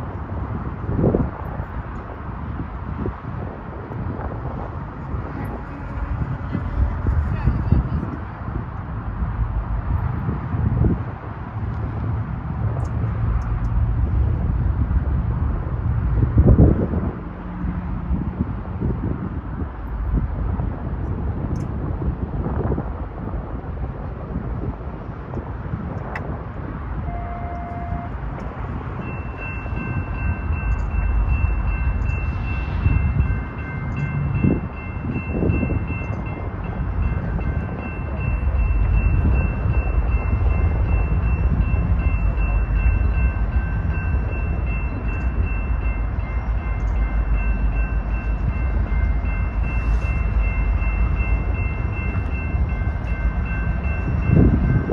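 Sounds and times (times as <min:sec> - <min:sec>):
diesel train rumbling: 0:00.0 - 0:54.9
steady high-pitched tones: 0:27.0 - 0:54.9.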